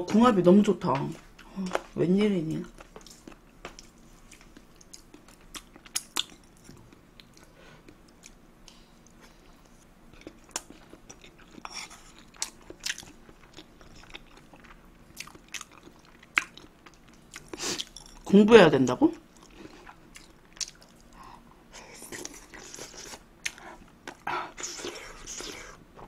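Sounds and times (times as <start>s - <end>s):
person chewing food: 2.6s - 18.3s, 19.3s - 26.0s.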